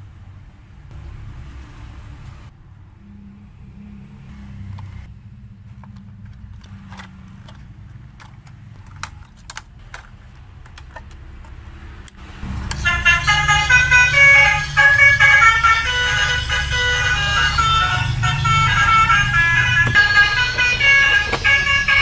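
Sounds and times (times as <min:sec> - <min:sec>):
plastic clicks and ticks: 0:05.7 - 0:12.9
toy truck motor whirring: 0:05.8 - 0:22.0.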